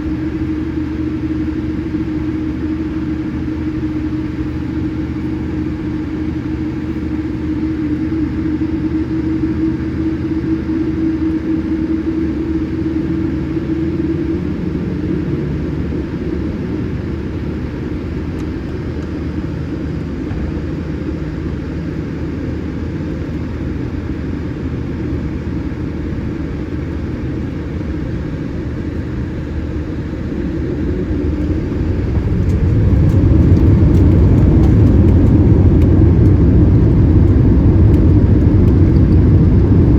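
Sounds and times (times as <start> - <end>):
jet engines rumbling: 0.0 - 39.9.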